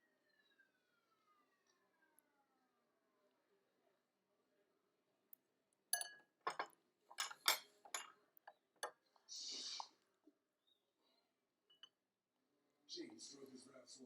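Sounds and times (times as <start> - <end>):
tableware clinking: 6.0 - 8.1
short hissing noise: 9.3 - 10.0.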